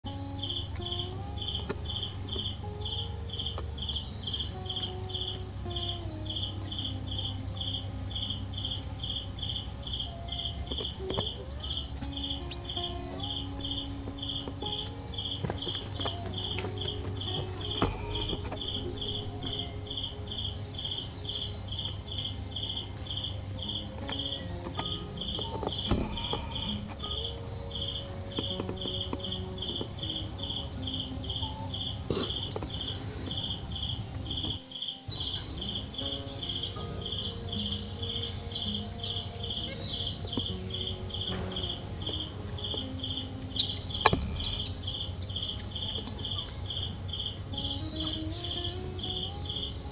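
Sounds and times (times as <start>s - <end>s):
high-pitched insect buzz: 0.0s - 49.9s
insects chirping: 0.0s - 49.9s
faint knocks: 10.7s - 20.2s.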